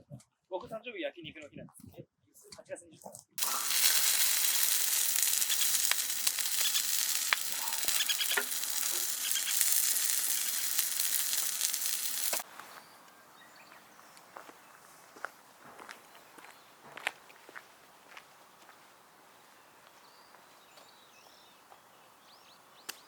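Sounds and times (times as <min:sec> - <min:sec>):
meat sizzling over fire: 0:03.4 - 0:12.5
fire popping: 0:03.4 - 0:12.6.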